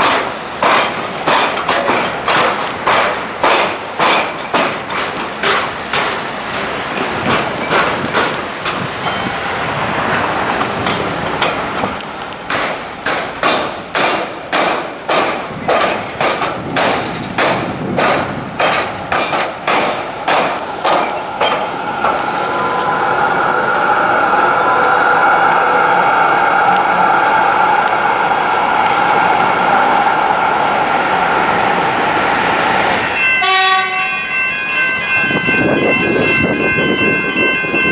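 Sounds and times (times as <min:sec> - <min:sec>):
train wheels clacking over rails: 0:00.0 - 0:37.9
train whine over hiss: 0:16.6 - 0:37.9.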